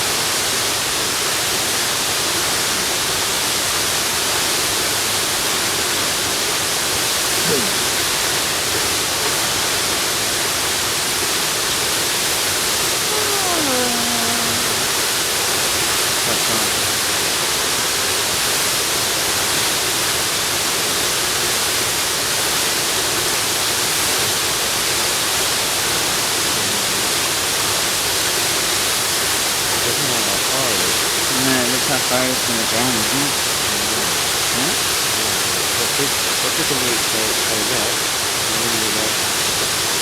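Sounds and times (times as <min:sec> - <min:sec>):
faint voice: 0:07.4 - 0:08.1, 0:13.0 - 0:15.1, 0:16.2 - 0:17.0, 0:26.4 - 0:27.3, 0:29.8 - 0:39.4
waterfall rushing: 0:21.9 - 0:40.0.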